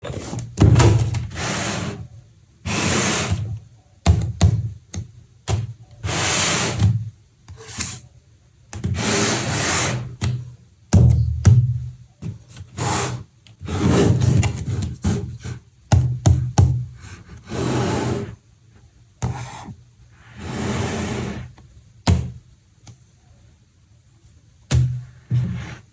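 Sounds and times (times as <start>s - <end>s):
cardboard sliding against cardboard: 1.3s - 2.0s, 2.7s - 3.4s, 9.0s - 10.1s, 12.7s - 15.6s, 17.0s - 18.4s, 19.2s - 21.6s, 25.2s - 25.9s.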